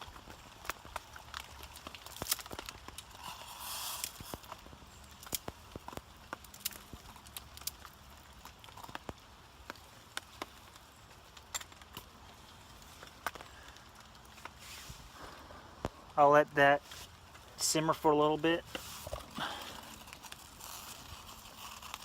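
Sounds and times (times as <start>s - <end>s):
campfire crackling and popping: 0.0s - 22.0s
faint hiss: 3.1s - 5.2s, 12.2s - 20.9s.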